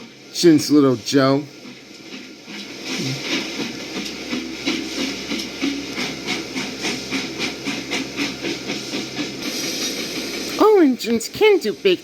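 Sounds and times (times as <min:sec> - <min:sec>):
steam locomotive chuffing: 0:00.0 - 0:12.0.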